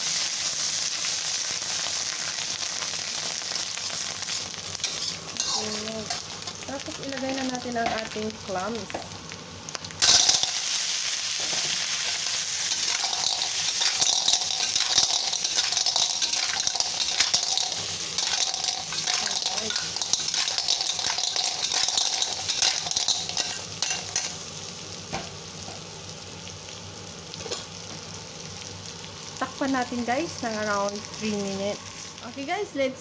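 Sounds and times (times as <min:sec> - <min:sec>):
clams sizzling in hot oil: 0:00.0 - 0:32.9
metal spatula scraping a wok: 0:04.8 - 0:06.2, 0:11.4 - 0:24.3.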